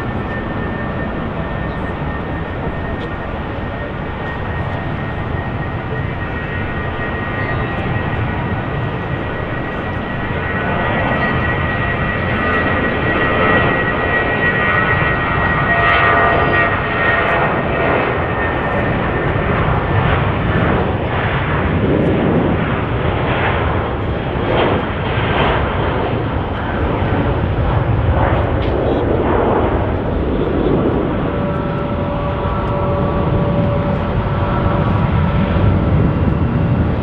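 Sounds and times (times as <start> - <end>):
thin high whine: 0.0 - 16.2
jet engines rumbling: 0.0 - 37.0.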